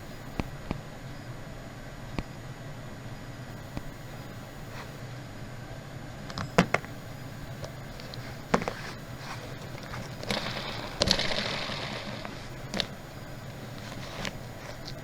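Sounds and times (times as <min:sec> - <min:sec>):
suitcase scraping and rustling: 0:03.9 - 0:05.0, 0:06.6 - 0:15.0
sharp clicks and knocks: 0:06.3 - 0:11.4.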